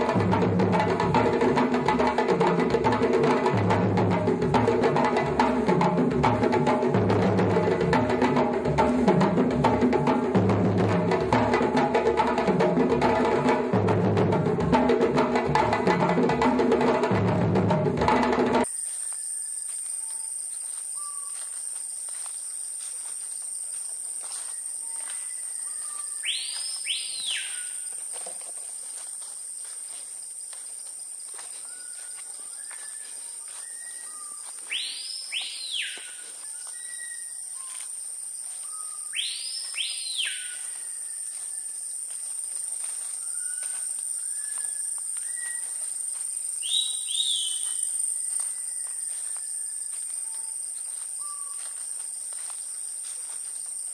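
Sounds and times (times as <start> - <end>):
insects droning: 0.0 - 53.9
bird soft whistles: 24.9 - 27.8, 31.6 - 37.7, 38.6 - 41.7, 43.2 - 45.7, 46.6 - 47.9, 48.5 - 50.5
loud sweeping whistles: 26.1 - 27.8, 32.5 - 37.7, 38.6 - 41.8, 44.2 - 45.7, 46.6 - 49.9.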